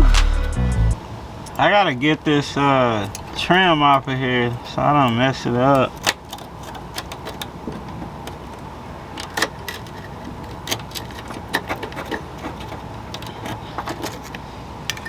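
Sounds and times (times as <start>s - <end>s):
metal trim clicks and knocks: 5.1s - 15.0s.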